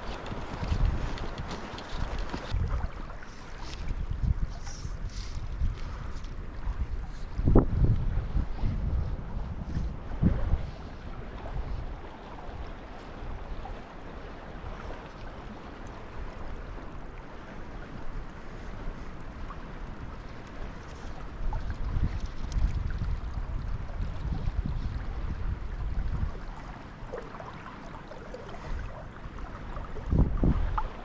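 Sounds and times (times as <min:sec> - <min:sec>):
wind buffeting microphone: 0:00.0 - 0:31.0
river water rushing: 0:26.4 - 0:31.0.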